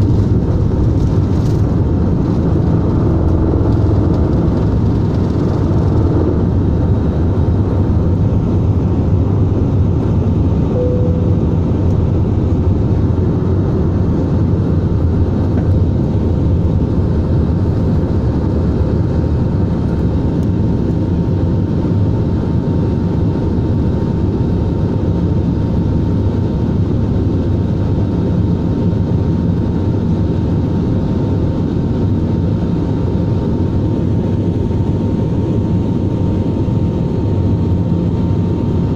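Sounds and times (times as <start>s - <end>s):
thin steady whine: 0.0s - 18.2s
jet engine rumble: 0.0s - 38.9s.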